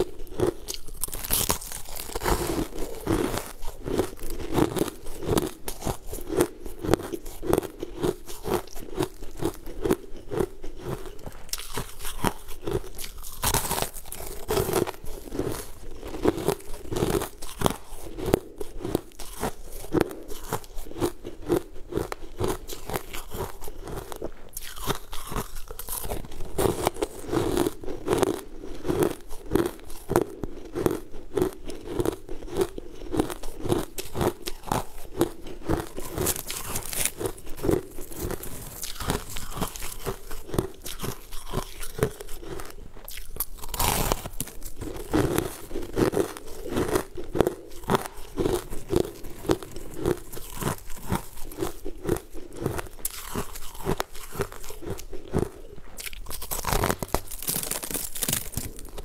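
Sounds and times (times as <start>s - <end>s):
crunchy sweet being chewed: 0.0s - 59.0s
plastic bag crinkling: 56.5s - 59.0s.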